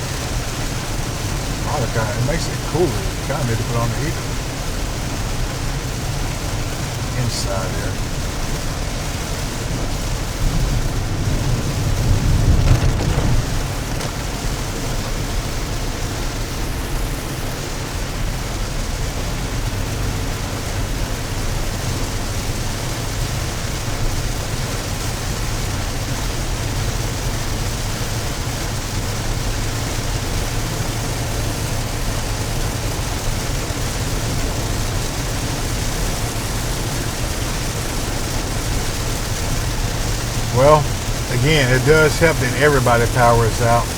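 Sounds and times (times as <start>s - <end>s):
tyre and road noise: 0.0s - 15.9s
rain on a moving car: 0.0s - 43.9s.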